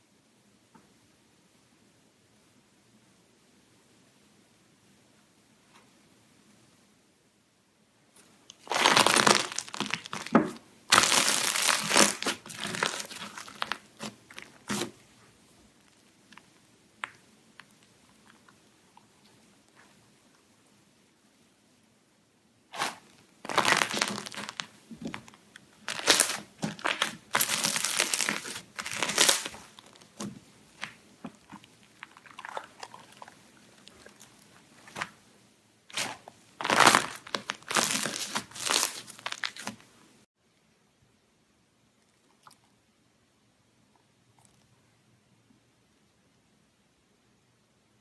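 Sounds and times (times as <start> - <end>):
slime squishing and crackling: 8.5 - 15.0, 22.7 - 35.2, 35.9 - 39.9.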